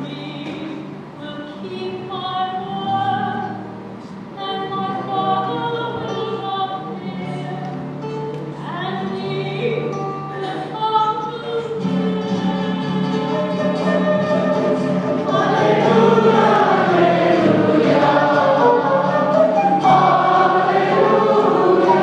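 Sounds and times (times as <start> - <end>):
church choir singing: 14.6 - 22.0.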